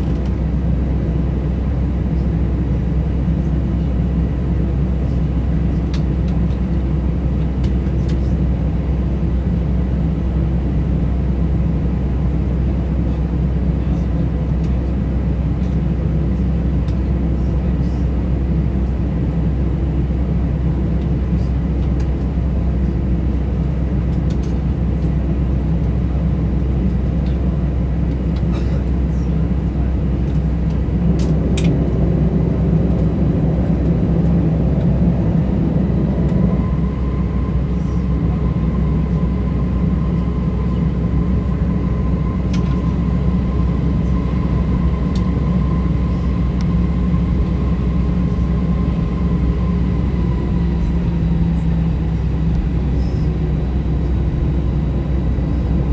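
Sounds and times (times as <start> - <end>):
airliner cabin drone: 0.0 - 55.9
faint steady whine: 21.0 - 55.9.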